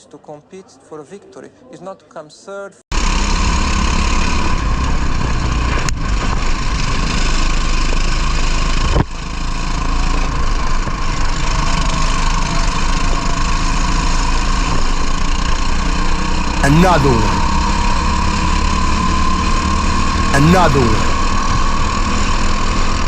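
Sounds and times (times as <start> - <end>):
kart engine running hard: 3.0 - 16.4.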